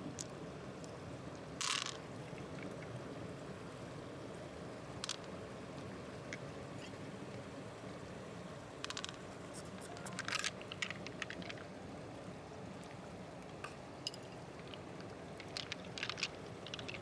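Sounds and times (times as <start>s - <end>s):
steady low hum: 0.0s - 17.0s
sharp clicks and scrapes: 8.8s - 11.6s.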